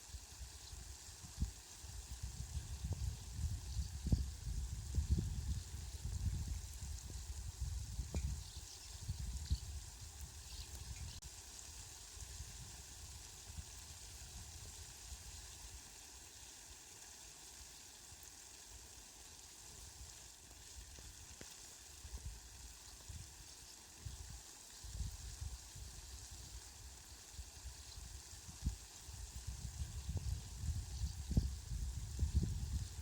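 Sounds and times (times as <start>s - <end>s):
rain falling: 11.0s - 30.7s.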